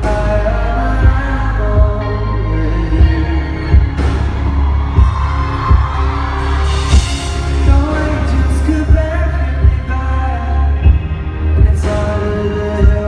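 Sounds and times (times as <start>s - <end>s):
live pop band music: 0.0s - 13.0s
heavy bass drum hits: 3.0s - 10.0s.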